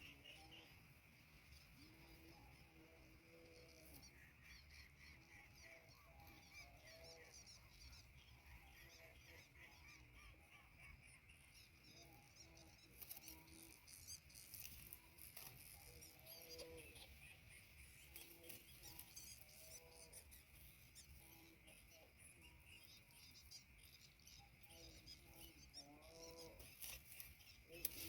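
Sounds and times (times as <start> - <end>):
small birds chirping: 0.0 - 28.0
insect buzz: 11.4 - 28.0.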